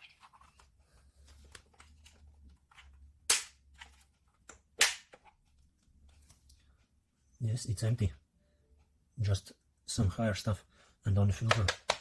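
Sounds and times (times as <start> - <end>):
loud plastic snaps: 4.8 - 5.2.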